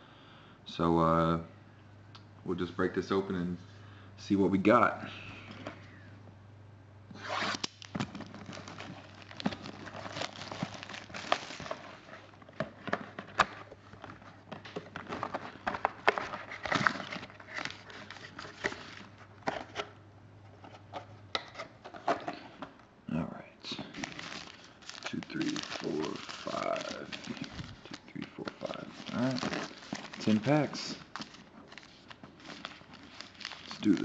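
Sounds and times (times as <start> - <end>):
packaging crinkling and tearing: 7.3 - 13.7, 14.6 - 19.1, 23.8 - 34.0
card packs clicking and rustling: 7.4 - 19.8, 23.8 - 34.0.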